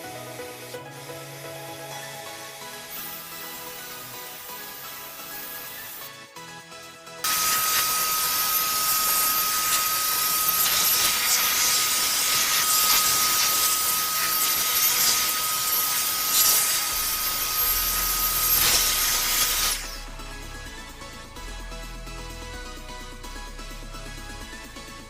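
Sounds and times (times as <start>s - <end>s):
cleaning machine hissing and whining: 0.0s - 6.3s, 7.2s - 20.8s.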